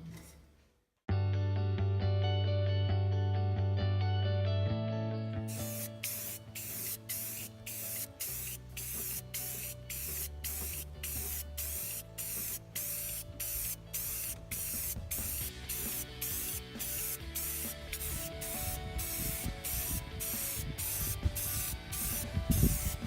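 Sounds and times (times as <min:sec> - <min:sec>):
background music: 0:01.1 - 0:23.0
spray paint hissing bursts: 0:05.5 - 0:23.0.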